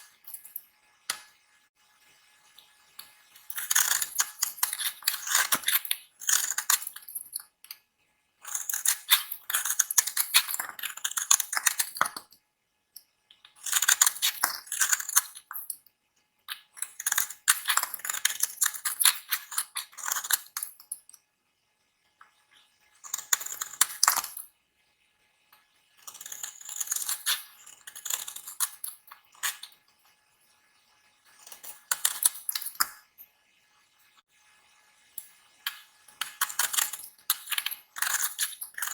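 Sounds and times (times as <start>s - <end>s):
blade cutting dry soap: 3.4s - 7.6s, 8.4s - 12.3s, 23.0s - 24.4s, 26.0s - 29.7s, 35.7s - 38.9s.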